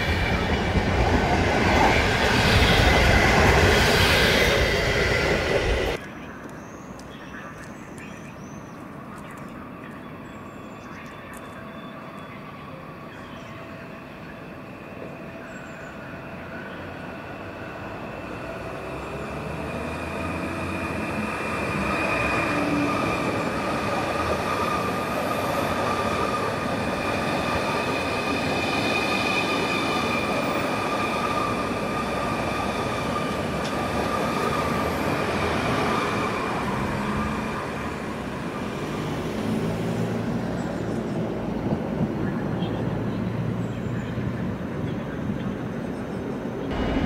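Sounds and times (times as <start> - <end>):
train rumble: 0.0 - 47.0
high-pitched train squeal: 10.4 - 38.1.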